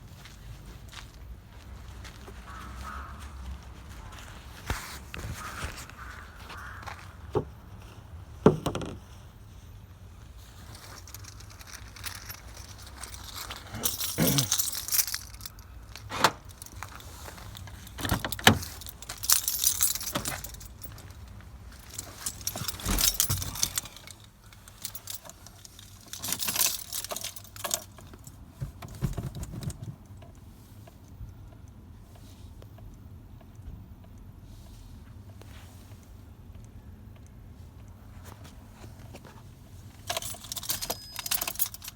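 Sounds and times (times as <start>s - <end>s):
car keys jangling: 10.6s - 30.2s, 39.9s - 41.9s.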